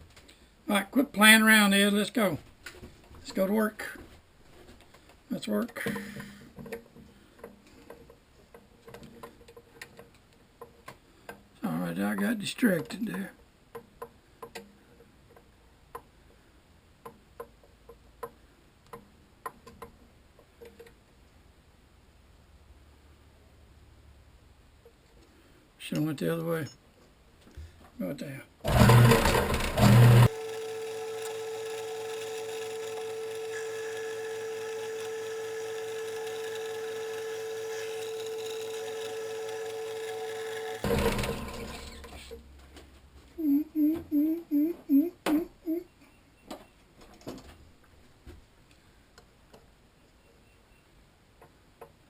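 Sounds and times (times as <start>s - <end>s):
machine motor humming: 28.7s - 42.1s.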